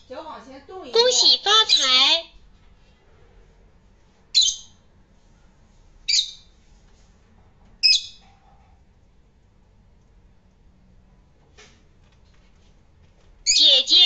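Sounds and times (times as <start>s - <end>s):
parrot calling: 1.0s - 2.3s, 4.4s - 4.8s, 13.4s - 14.0s.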